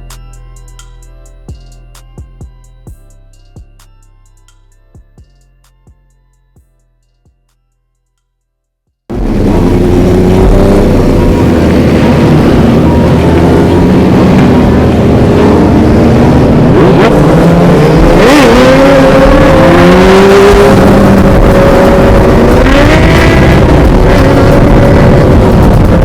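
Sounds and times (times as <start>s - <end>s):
motorcycle engine revving: 9.1s - 26.0s
motorcycle engines running: 9.1s - 26.0s.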